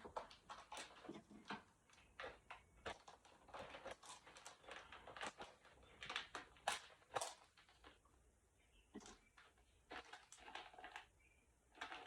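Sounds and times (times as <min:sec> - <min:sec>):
plastic snack packet crinkling: 0:02.0 - 0:08.0, 0:09.0 - 0:12.0.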